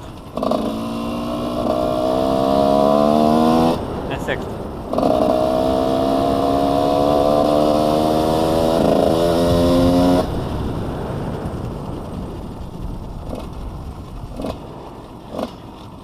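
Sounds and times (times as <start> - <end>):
dirt bike engine pulling: 0.0 - 16.0
faint engine rumble: 9.5 - 16.0.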